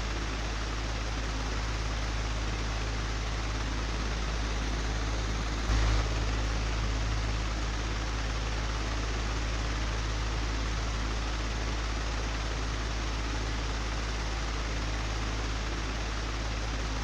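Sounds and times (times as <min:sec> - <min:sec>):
electric fan running: 0:00.0 - 0:17.0.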